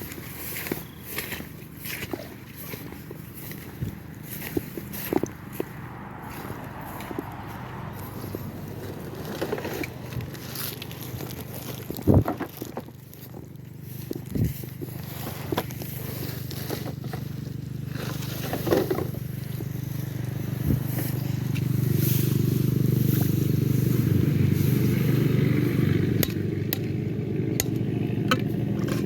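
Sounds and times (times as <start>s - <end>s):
small engine running: 0.0s - 29.0s.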